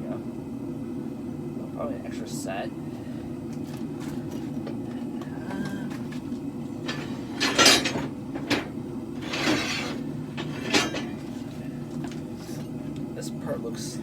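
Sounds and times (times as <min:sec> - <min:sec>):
metal clanks and scrapes: 0:06.8 - 0:11.5.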